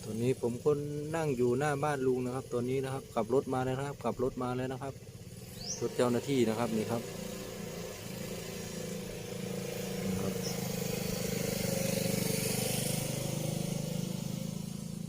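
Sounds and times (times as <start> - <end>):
vehicle driving past: 5.2 - 15.0.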